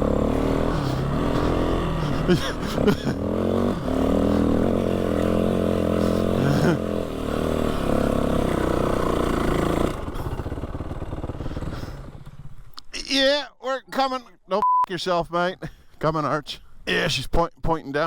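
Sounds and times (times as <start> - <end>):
motorbike engine revving: 0.0 - 12.8.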